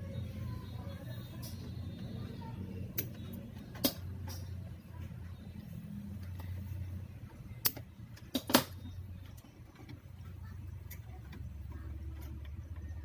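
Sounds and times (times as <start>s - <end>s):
low steady hum: 0.0s - 13.0s
sharp click: 7.6s - 8.8s.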